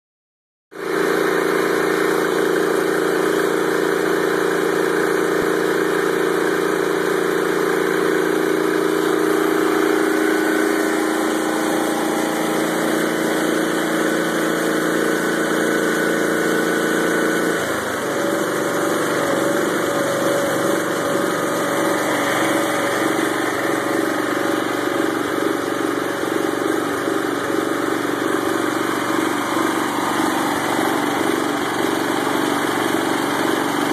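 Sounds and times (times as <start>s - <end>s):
garden tractor engine running: 0.8s - 33.9s.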